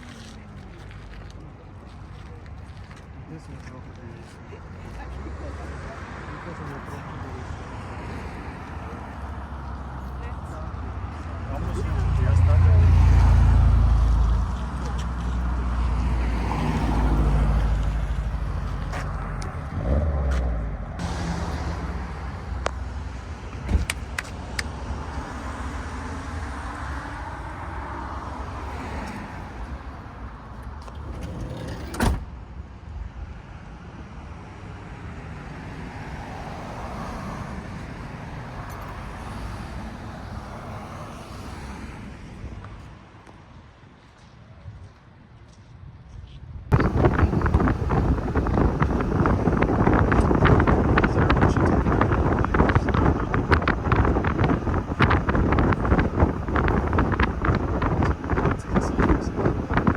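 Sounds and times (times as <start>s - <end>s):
vehicle engine rumble: 0.0s - 59.9s.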